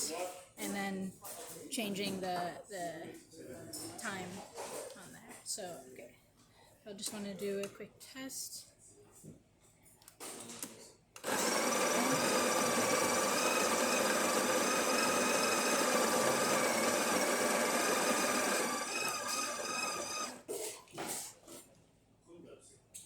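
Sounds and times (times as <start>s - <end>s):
coffee grinder whining: 11.2s - 20.5s.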